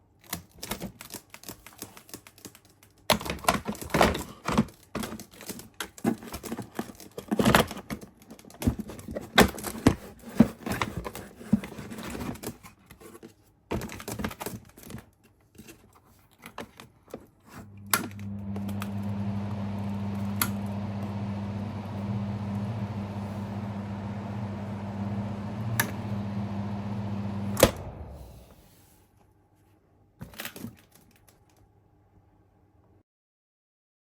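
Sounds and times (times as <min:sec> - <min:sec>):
ventilation fan humming and whirring: 0:17.6 - 0:28.8
fan switch click: 0:22.5 - 0:28.6.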